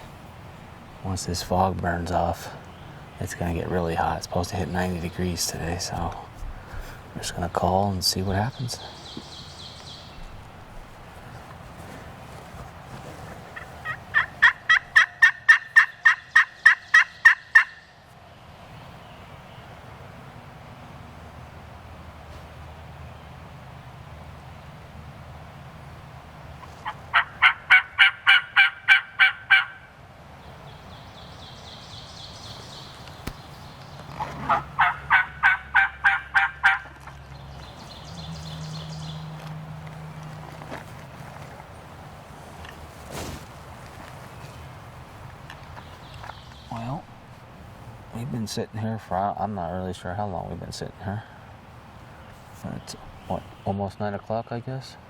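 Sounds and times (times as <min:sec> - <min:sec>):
turkey call hen yelps: 0:13.8 - 0:17.9, 0:26.8 - 0:29.9, 0:34.4 - 0:36.9.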